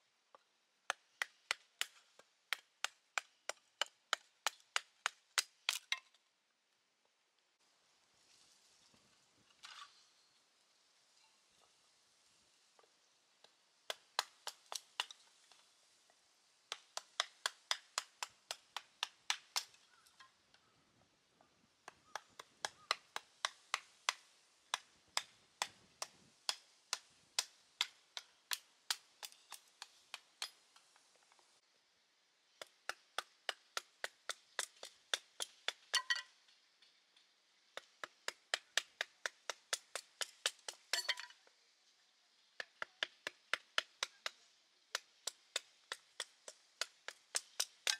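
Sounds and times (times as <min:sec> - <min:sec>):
blade chopping kindling sticks: 0:00.9 - 0:06.0, 0:16.7 - 0:19.8, 0:21.9 - 0:30.6, 0:45.2 - 0:47.9.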